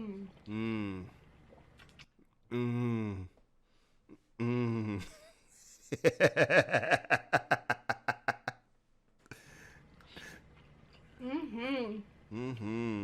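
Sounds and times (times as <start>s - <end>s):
short vocal sound: 0.0s - 1.2s, 2.5s - 3.4s, 4.1s - 5.1s, 12.3s - 13.0s
person laughing: 5.9s - 8.6s.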